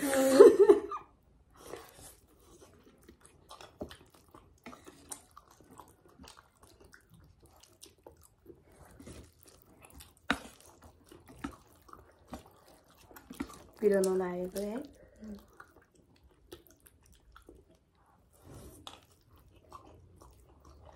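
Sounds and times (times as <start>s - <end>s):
chewing: 1.6s - 20.9s.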